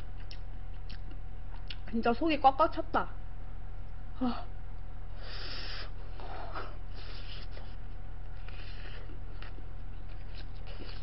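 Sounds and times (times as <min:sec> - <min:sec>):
person chewing: 0:00.0 - 0:01.9, 0:06.9 - 0:11.0
low electrical hum: 0:00.0 - 0:11.0.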